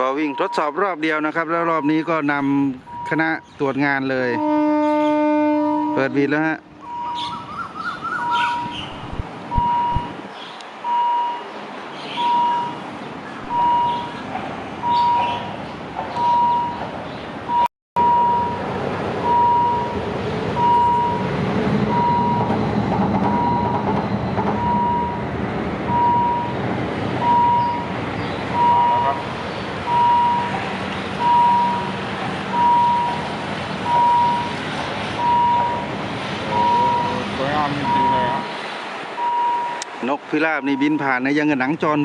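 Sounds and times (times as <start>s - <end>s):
diesel railcar engine: 0.0s - 42.0s
electronic beep: 6.8s - 7.3s, 8.2s - 8.9s, 9.5s - 10.1s, 12.2s - 12.8s, 13.5s - 14.1s, 16.2s - 16.8s, 17.5s - 18.6s, 19.3s - 19.9s, 20.6s - 21.2s, 24.6s - 25.2s, 26.0s - 26.6s, 27.2s - 27.9s, 28.6s - 29.2s, 29.9s - 30.5s, 31.2s - 31.9s, 32.6s - 33.2s, 33.9s - 34.5s, 36.5s - 37.2s.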